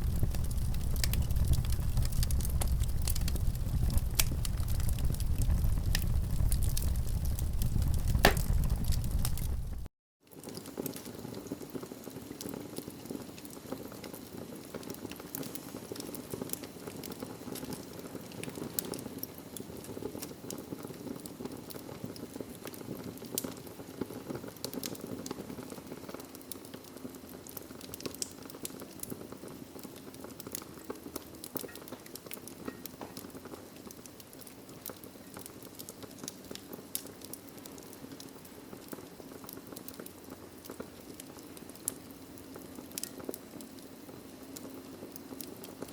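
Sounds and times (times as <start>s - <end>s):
fire rushing in fireplace: 0.0s - 9.9s
fire crackling and popping: 0.0s - 45.9s.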